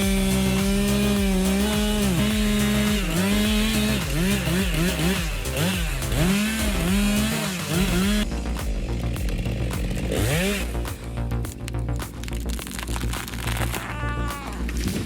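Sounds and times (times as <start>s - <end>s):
chainsaw cutting wood: 0.0s - 11.2s.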